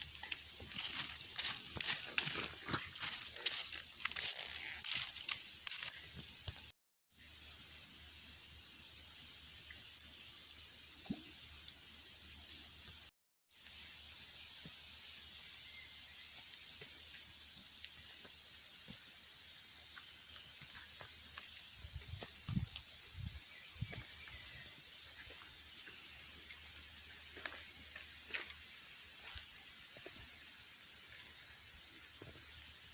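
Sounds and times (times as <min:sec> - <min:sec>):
insects chorus shrill hiss: 0:00.0 - 0:32.9.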